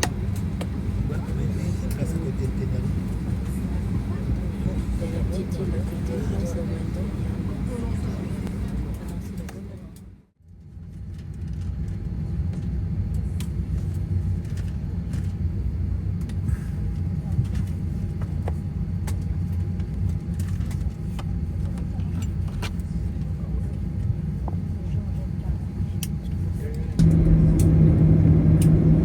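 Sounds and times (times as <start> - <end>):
vehicle rumble from inside: 26.7 - 29.0
faint steady hum: 26.8 - 29.0.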